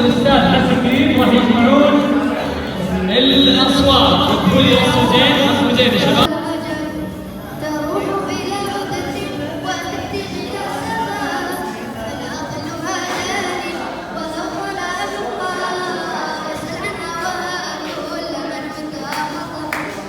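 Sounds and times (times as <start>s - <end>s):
person singing unaccompanied: 0.0s - 13.6s.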